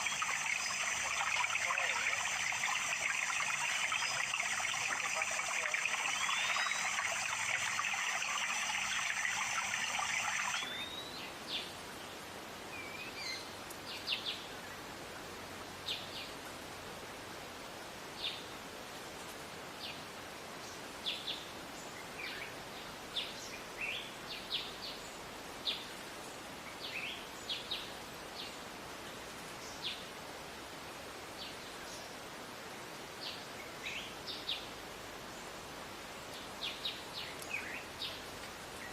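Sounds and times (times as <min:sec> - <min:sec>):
water trickling: 0:00.0 - 0:10.8
bird chirping: 0:00.0 - 0:11.3.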